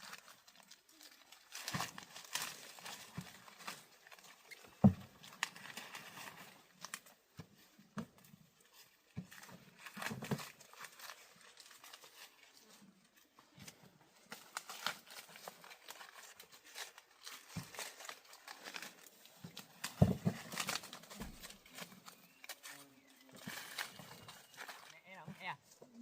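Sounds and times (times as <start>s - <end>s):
dry corn leaves rustling: 0.0s - 26.0s.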